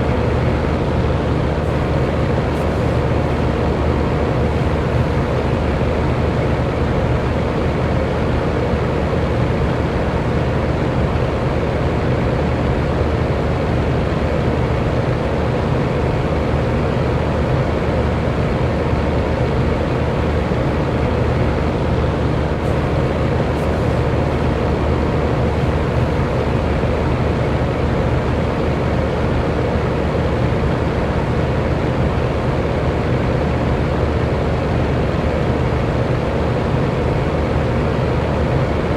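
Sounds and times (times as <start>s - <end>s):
electric fan whoosh: 0.0s - 6.8s, 19.3s - 28.4s
faint motor hum: 0.0s - 38.9s.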